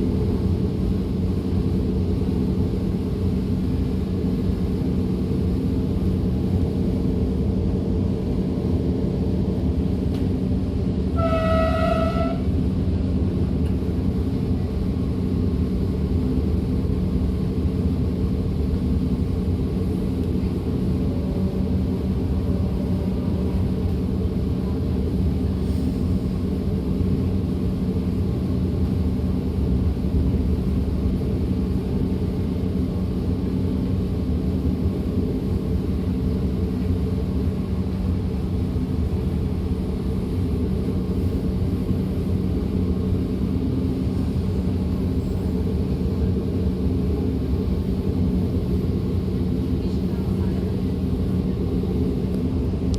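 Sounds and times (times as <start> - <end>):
train wheels rumbling on track: 0.0 - 52.9
train horn: 11.1 - 12.6.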